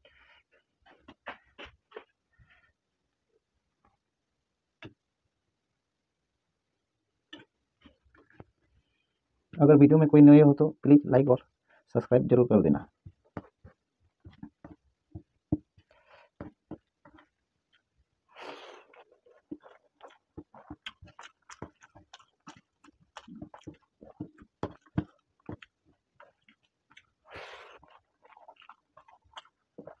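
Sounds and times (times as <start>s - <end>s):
man chewing wetly: 0.2s - 2.2s, 13.0s - 30.0s.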